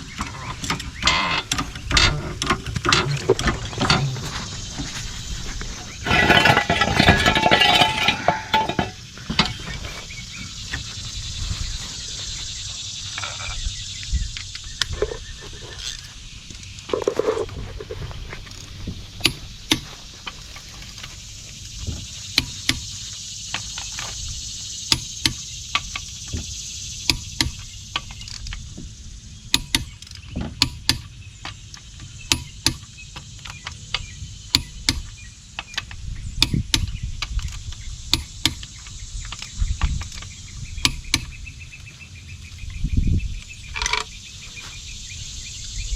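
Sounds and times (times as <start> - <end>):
steady high hiss: 0.0 - 45.9.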